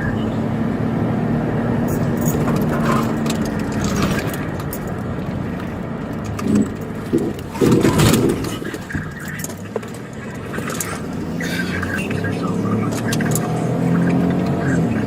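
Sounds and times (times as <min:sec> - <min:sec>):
car engine and road noise: 0:00.0 - 0:15.0
light rattles and clicks: 0:01.9 - 0:11.2.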